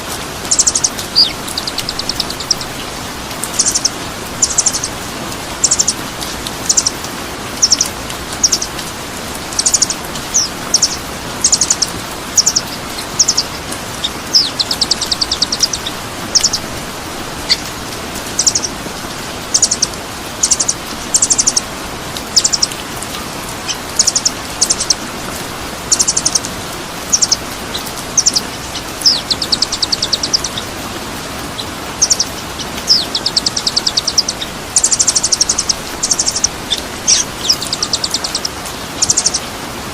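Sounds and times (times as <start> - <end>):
songbird chirps: 0.0 - 39.9
steady rushing hiss: 0.0 - 39.9
bird rattling trills: 0.4 - 5.0, 7.6 - 8.8, 9.4 - 17.6, 19.4 - 21.7, 22.3 - 22.8, 23.6 - 25.0, 25.9 - 30.8, 31.5 - 39.4.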